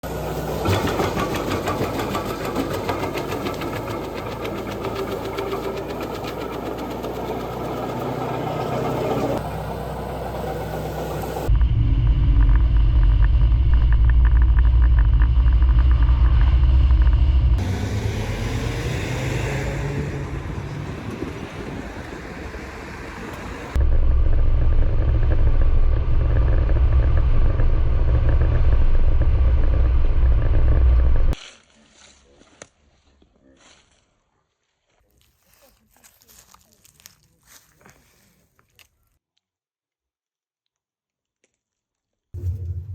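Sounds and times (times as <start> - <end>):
wood chipper engine running: 0.0 - 31.4, 42.4 - 42.9.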